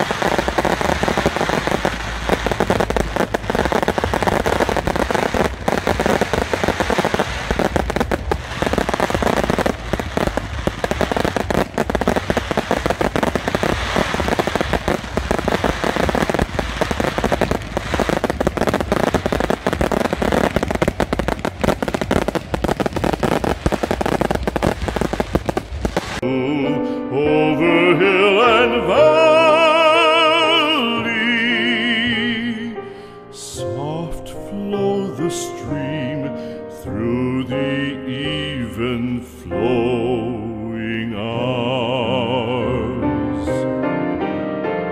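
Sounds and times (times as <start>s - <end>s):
fireworks bangs and crackling: 0.0s - 26.3s
music: 0.0s - 44.9s.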